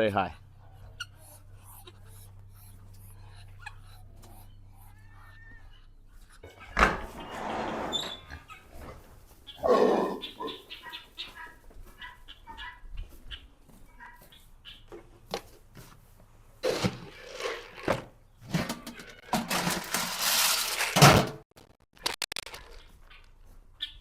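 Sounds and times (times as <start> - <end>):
rustling and clattering: 17.8 - 21.4.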